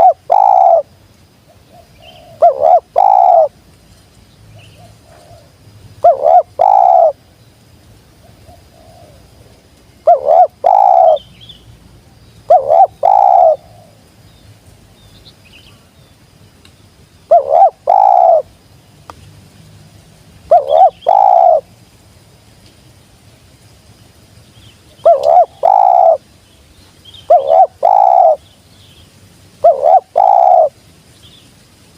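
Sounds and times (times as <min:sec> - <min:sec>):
dove cooing: 0:00.0 - 0:00.9, 0:01.5 - 0:03.5, 0:04.8 - 0:07.2, 0:08.2 - 0:09.4, 0:10.0 - 0:11.2, 0:12.4 - 0:14.1, 0:17.3 - 0:18.5, 0:20.5 - 0:21.7, 0:25.0 - 0:26.2, 0:27.3 - 0:28.4, 0:29.6 - 0:30.8.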